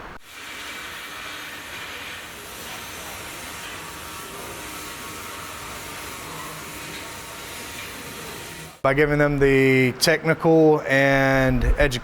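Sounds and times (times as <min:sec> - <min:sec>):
welding arc hissing and crackling: 0:00.2 - 0:08.8.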